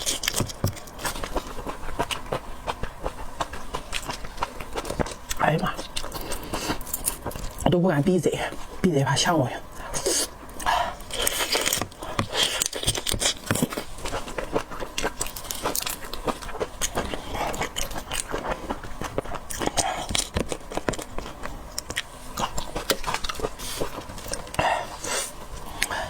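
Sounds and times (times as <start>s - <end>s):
wet chewing and mouth clicks: 0.0s - 7.7s, 9.7s - 26.0s.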